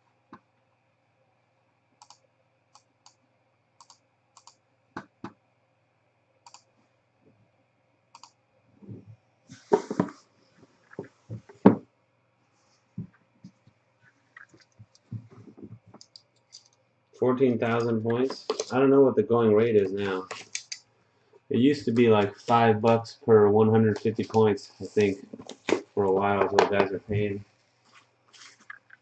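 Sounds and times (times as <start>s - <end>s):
knocks and rustling: 8.8s - 11.8s, 14.4s - 16.0s.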